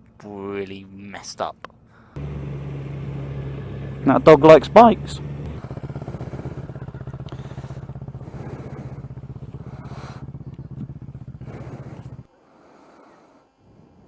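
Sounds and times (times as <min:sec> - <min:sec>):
motorcycle engine idling low: 0:02.2 - 0:12.3.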